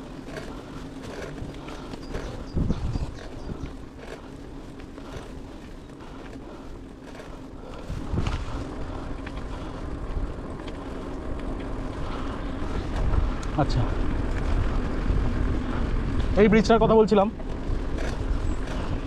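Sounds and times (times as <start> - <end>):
bicycle tyre noise: 0.0 - 19.0
wind on microphone: 1.2 - 3.8, 7.7 - 10.4.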